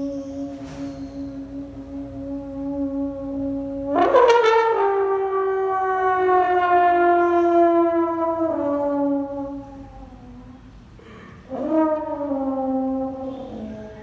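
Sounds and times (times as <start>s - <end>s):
sustained horn-like note: 0.0s - 10.8s.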